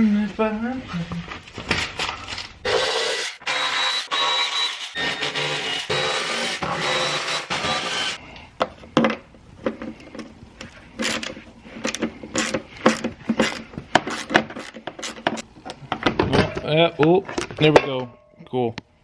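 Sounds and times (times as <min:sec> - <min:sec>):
wrench clicking and scraping on bolt: 0:11.0 - 0:15.4.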